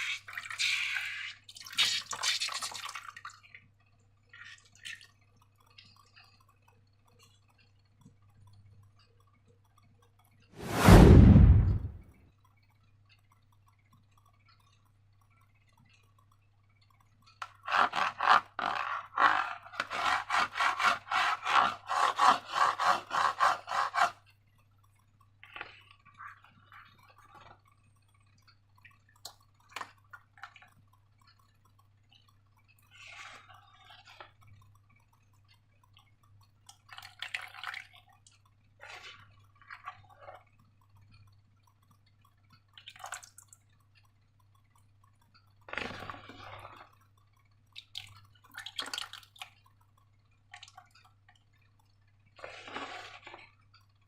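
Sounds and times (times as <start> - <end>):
rapid rubbing strokes: 10.6 - 12.0
slime squelching: 31.6 - 54.0.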